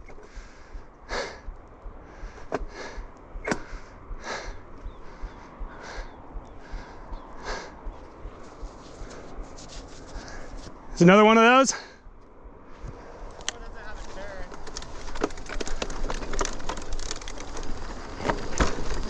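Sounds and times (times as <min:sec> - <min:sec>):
person breathing hard and sniffing: 0:00.2 - 0:10.8
sharp clicks: 0:14.5 - 0:18.8.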